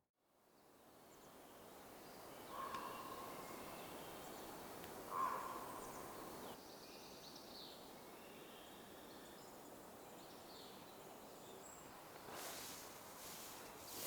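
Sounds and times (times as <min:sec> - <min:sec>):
steady background hiss: 0:00.7 - 0:14.0
bird calls: 0:02.4 - 0:04.4, 0:05.1 - 0:06.6.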